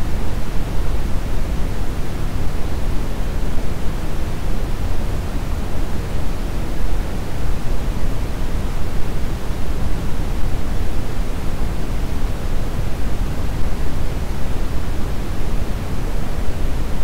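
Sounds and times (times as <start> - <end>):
brown noise hiss: 0.0 - 17.0.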